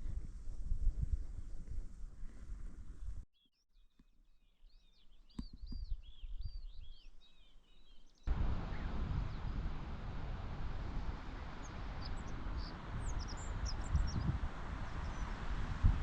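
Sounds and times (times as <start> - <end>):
small bird chirping: 3.4 - 9.4, 11.6 - 15.4
low rumbling noise: 8.3 - 16.0.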